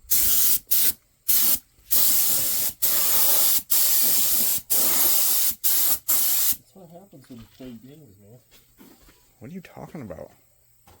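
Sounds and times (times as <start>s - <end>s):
spray paint can hissing: 0.1s - 6.6s.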